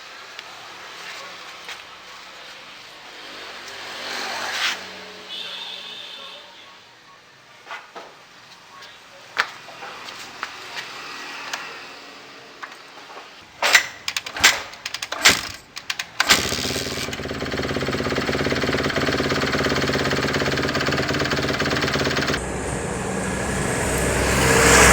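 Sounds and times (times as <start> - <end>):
sharp mechanical clanks: 13.6 - 22.4
dirt bike engine running: 16.3 - 24.9.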